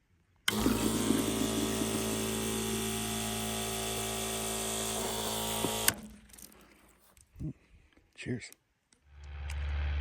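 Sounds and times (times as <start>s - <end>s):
small electric motor whining: 0.5s - 6.1s.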